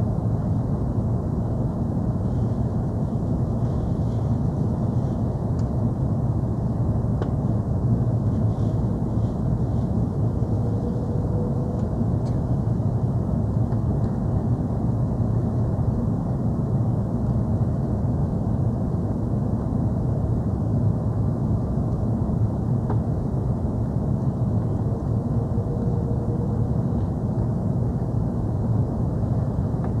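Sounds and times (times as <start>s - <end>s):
aircraft cabin rumble: 0.0s - 30.0s.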